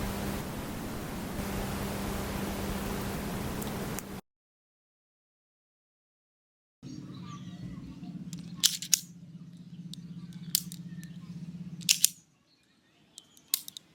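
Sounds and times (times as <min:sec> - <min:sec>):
low hum: 0:00.0 - 0:04.2, 0:06.8 - 0:12.2
sharp mechanical clicks: 0:08.3 - 0:09.1, 0:09.9 - 0:11.2, 0:11.8 - 0:12.2, 0:13.2 - 0:13.9.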